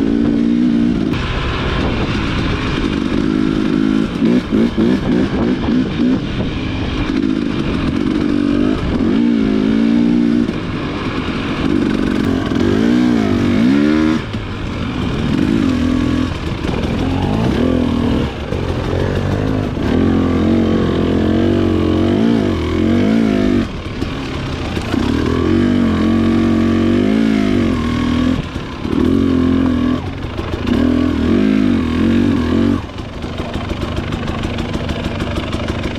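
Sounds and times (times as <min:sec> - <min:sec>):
dirt bike engine revving: 0:00.0 - 0:35.9.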